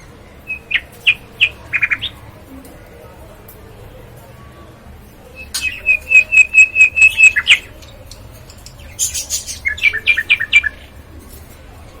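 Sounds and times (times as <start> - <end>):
parrot high-pitched chatter: 8.6 - 10.8.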